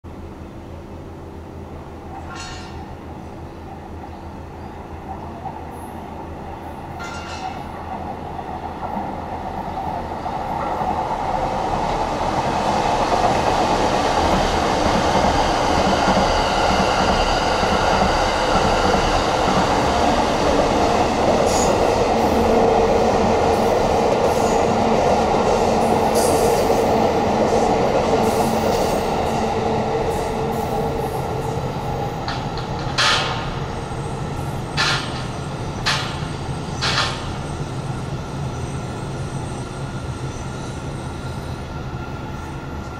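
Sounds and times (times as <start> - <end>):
train wheels on rails: 1.0 - 42.9.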